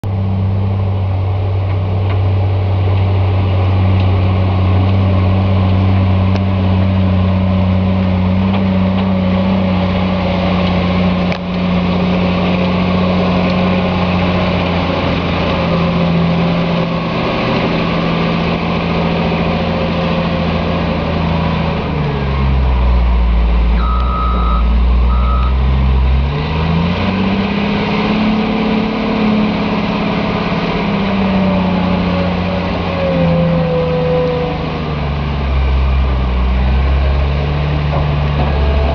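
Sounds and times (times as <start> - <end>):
diesel engine running under load: 0.0 - 38.9
reversing alarm beeps: 23.8 - 25.6.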